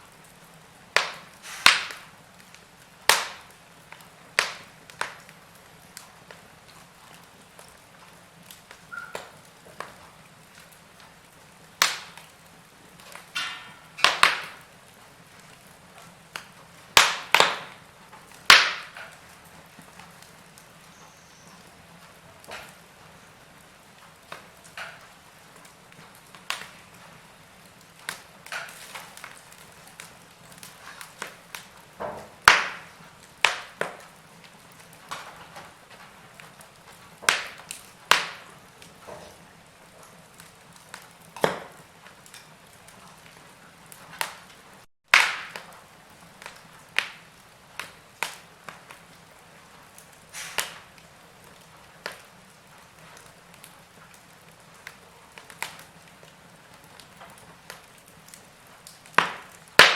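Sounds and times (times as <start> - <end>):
faint steady hiss: 0.0 - 59.9
wood fire crackling: 0.0 - 59.9.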